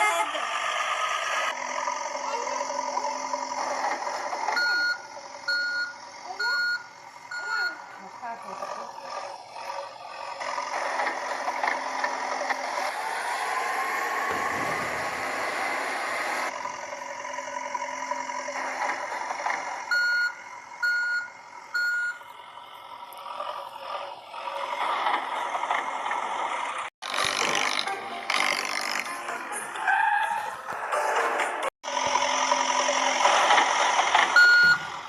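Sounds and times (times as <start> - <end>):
reversing beeps: 4.5 - 7.9, 19.9 - 22.2, 34.4 - 34.9
toy engine sound effect: 27.0 - 30.4.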